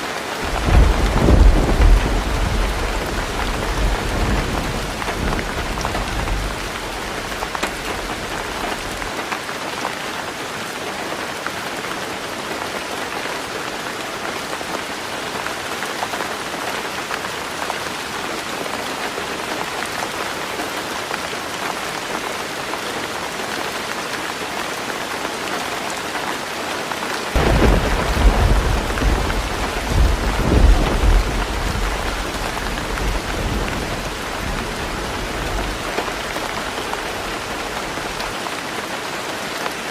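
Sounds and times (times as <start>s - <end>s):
heavy rain on a tin roof: 0.0s - 39.9s
thunder rumble: 0.4s - 9.1s, 27.4s - 38.3s.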